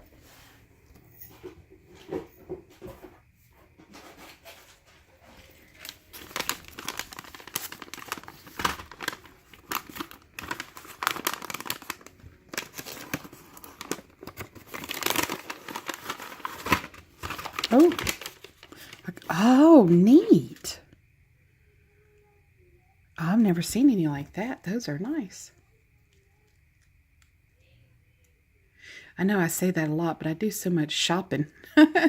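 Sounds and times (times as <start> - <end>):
packaging crinkling rustles: 3.9 - 20.0.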